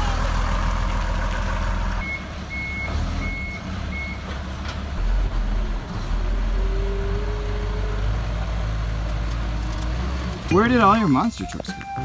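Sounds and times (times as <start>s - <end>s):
vehicle reversing alarm beeping: 1.9s - 4.3s, 10.8s - 12.0s.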